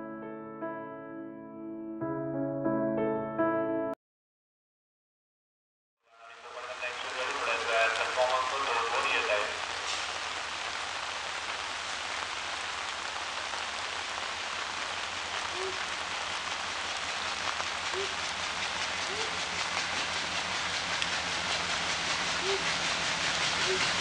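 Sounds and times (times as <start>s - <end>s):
approaching train: 6.1s - 24.0s
rain falling on tracks: 6.1s - 24.0s.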